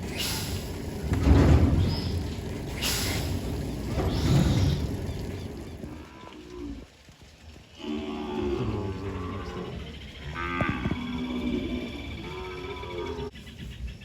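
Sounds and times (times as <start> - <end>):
cattle mooing: 7.8 - 13.3.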